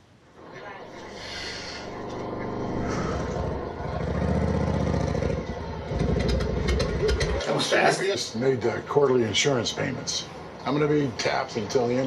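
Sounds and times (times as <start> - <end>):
vehicle engine revving: 0.8 - 7.5.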